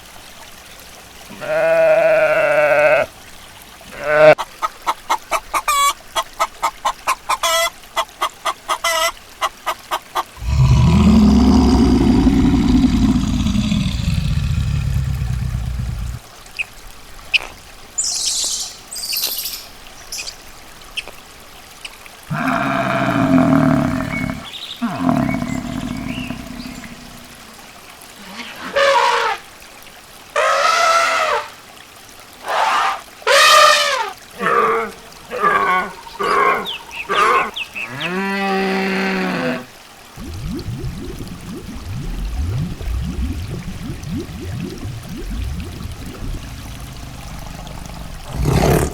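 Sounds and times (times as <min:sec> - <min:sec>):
pitched animal calls: 0:01.3 - 0:03.0, 0:32.5 - 0:39.6
long low rumbling animal call: 0:10.4 - 0:16.2, 0:22.3 - 0:27.4, 0:40.2 - 0:48.9.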